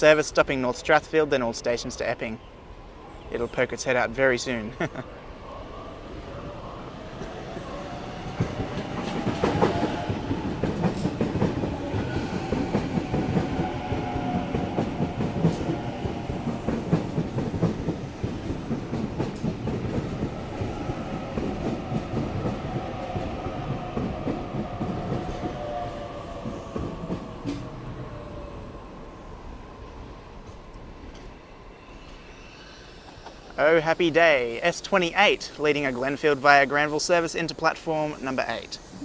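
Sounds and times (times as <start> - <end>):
train rumble: 3.4 - 31.4.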